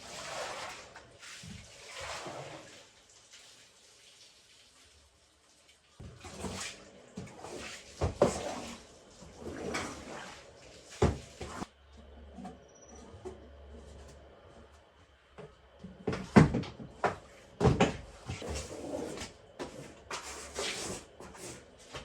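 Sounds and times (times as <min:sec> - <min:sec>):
household handling knocks and clatter: 0:15.4 - 0:18.6.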